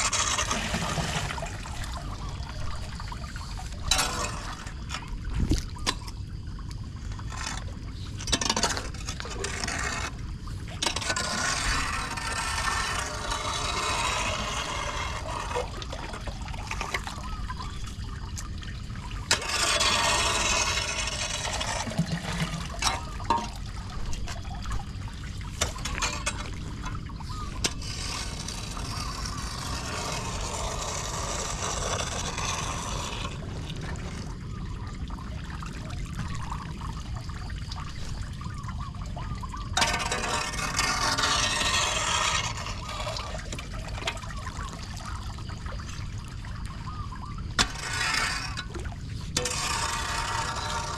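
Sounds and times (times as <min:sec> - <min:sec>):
water pouring down storm drain: 0:00.0 - 0:50.9.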